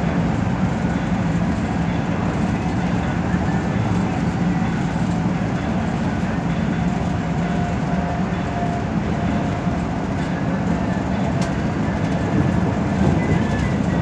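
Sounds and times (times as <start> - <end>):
bus engine and road noise: 0.0 - 14.0.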